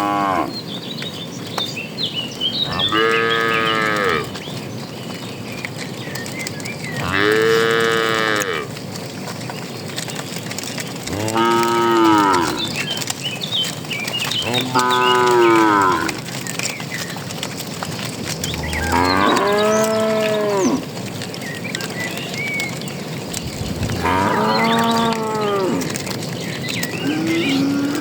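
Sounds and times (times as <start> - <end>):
cattle mooing: 0.0 - 0.5, 2.7 - 4.4, 7.0 - 8.7, 11.1 - 12.8, 14.5 - 16.2, 18.4 - 21.0, 23.3 - 26.2, 27.0 - 28.0.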